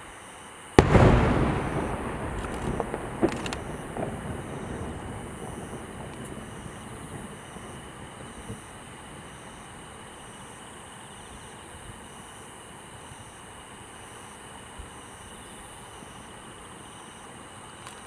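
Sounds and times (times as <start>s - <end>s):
background hiss: 0.0s - 18.0s
high insect drone: 0.0s - 18.0s
low rumble: 0.8s - 7.8s.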